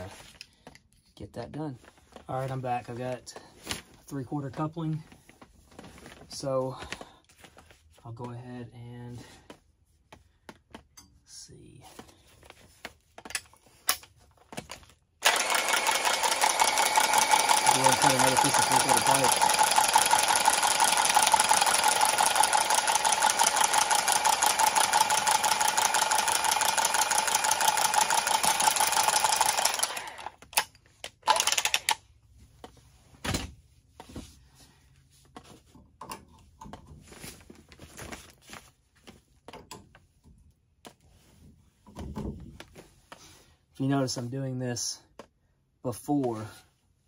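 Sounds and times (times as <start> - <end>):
tubing cutter running: 15.2 - 30.6, 31.3 - 32.0.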